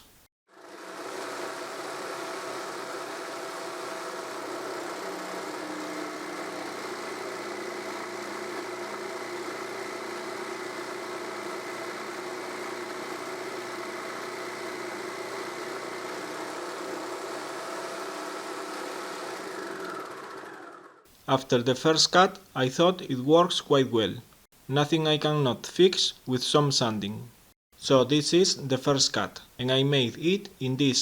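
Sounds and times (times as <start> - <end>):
jigsaw cutting: 0.5 - 21.0.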